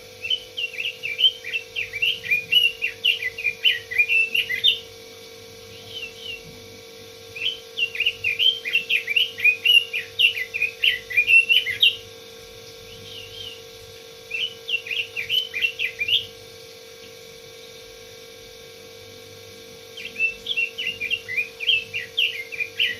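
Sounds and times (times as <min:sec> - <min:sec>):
steady low hum: 0:00.0 - 0:22.9
bird singing warbling phrases: 0:00.2 - 0:04.9, 0:05.7 - 0:06.5, 0:07.4 - 0:12.1, 0:12.7 - 0:16.4, 0:20.0 - 0:22.9.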